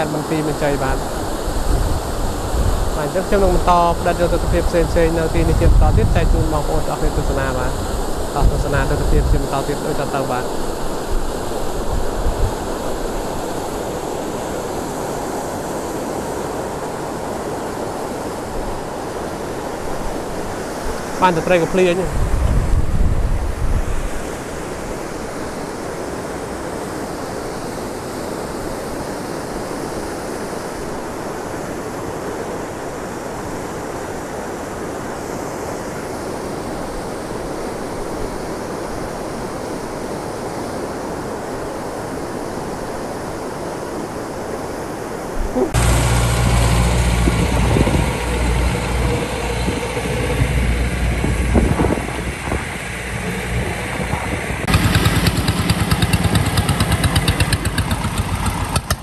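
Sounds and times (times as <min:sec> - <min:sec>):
floodwater rushing: 0:00.0 - 0:59.0
small engine running: 0:45.6 - 0:59.0.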